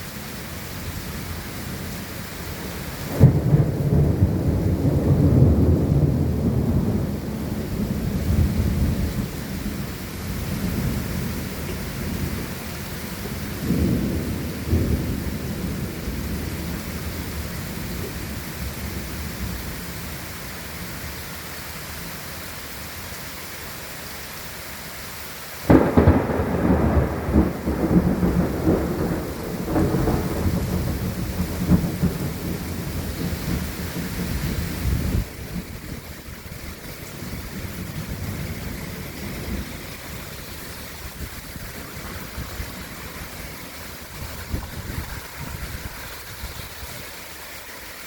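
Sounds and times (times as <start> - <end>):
steady rain: 0.0 - 48.0
thunder rumbling: 0.9 - 19.9, 25.7 - 47.4
loud thunderclap: 3.1 - 9.8, 13.6 - 17.0, 25.7 - 40.1, 41.1 - 46.0.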